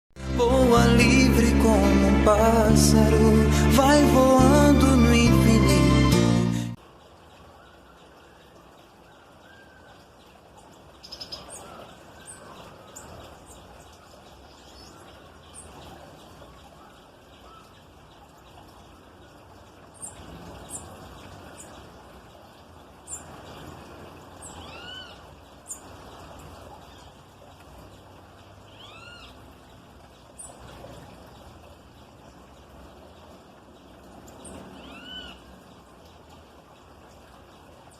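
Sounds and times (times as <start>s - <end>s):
small songbirds chirping: 7.0s - 37.9s
long arching bird calls: 11.0s - 18.5s, 24.4s - 25.9s, 28.7s - 29.4s, 34.4s - 36.2s.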